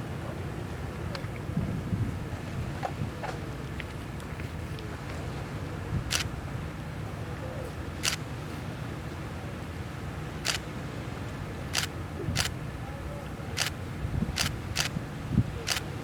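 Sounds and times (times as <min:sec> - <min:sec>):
camera shutter clicks: 0:06.1 - 0:06.3, 0:08.0 - 0:08.2, 0:10.4 - 0:10.7, 0:11.8 - 0:12.6, 0:13.6 - 0:13.8, 0:14.4 - 0:15.0, 0:15.6 - 0:15.9.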